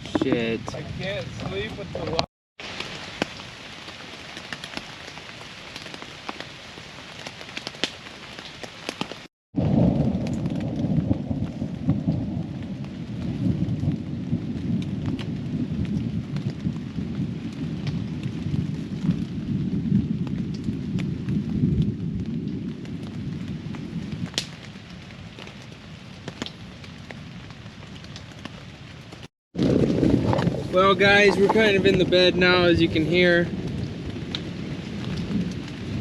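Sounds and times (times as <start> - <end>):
rain on a tent: 0.0 - 36.0
rolling thunder: 9.6 - 24.5, 29.6 - 36.0.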